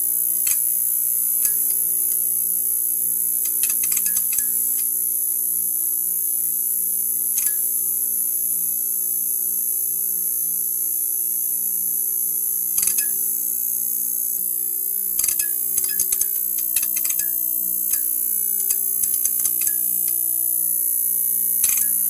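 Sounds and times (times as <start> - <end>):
neon sign buzzing: 0.0 - 5.8, 12.6 - 22.0.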